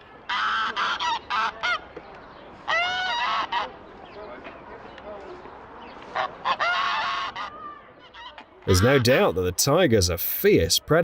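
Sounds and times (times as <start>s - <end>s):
goose honking: 8.7s - 9.2s.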